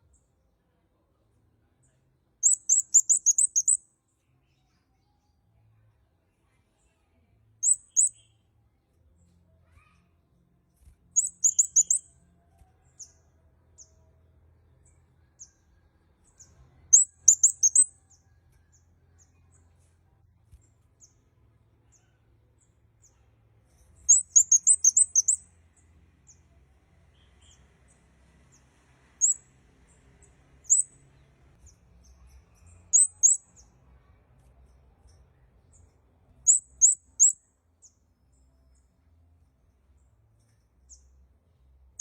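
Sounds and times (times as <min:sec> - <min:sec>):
high thin bird chirps: 0:02.4 - 0:03.9, 0:07.6 - 0:08.5, 0:11.2 - 0:12.2, 0:16.9 - 0:18.2, 0:23.7 - 0:25.5, 0:29.2 - 0:29.4, 0:30.6 - 0:31.0, 0:31.6 - 0:33.6, 0:36.4 - 0:37.4.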